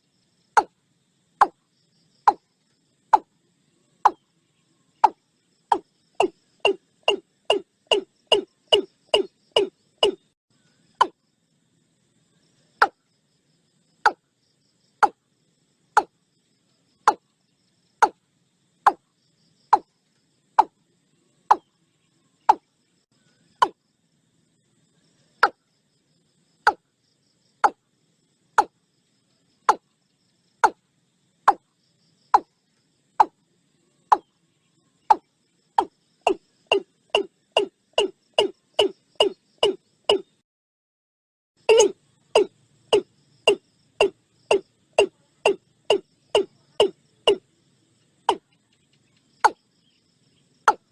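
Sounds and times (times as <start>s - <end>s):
bird calling short hollow notes: 5.0s - 10.2s, 41.7s - 47.4s.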